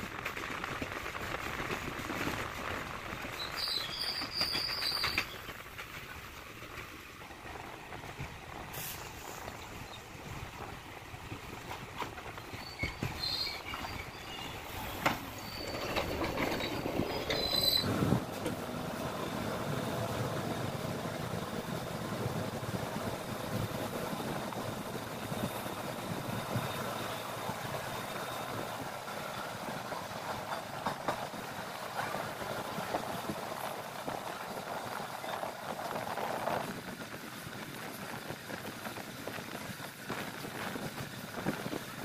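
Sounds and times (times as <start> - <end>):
train wheels rumbling on rails: 0.0 - 42.0.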